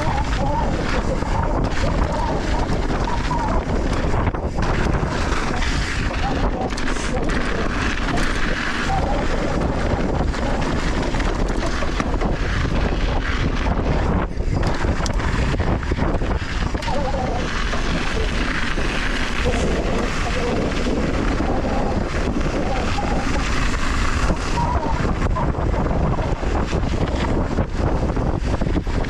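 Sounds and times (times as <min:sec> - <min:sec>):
mountain bike rattle and tyre noise: 0:00.0 - 0:29.0
wind buffeting microphone: 0:00.0 - 0:29.0.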